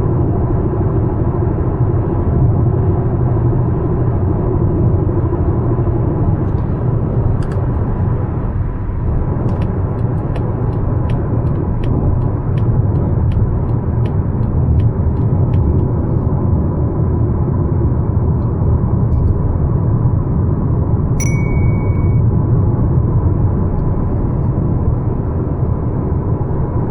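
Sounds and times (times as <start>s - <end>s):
car engine hum: 0.0s - 26.9s
road and tyre rumble: 0.0s - 26.9s
turn signal ticking: 9.4s - 16.0s.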